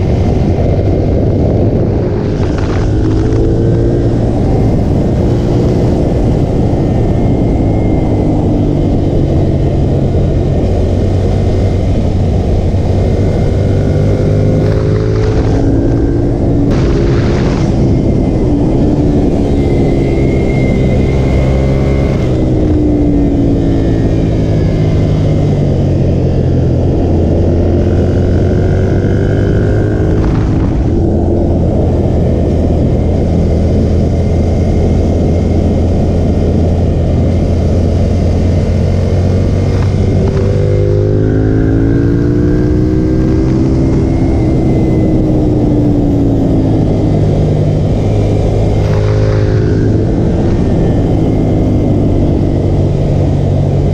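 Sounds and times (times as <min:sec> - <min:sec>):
motorcycle engine revving: 0:00.0 - 0:53.9
wind noise: 0:00.0 - 0:53.9.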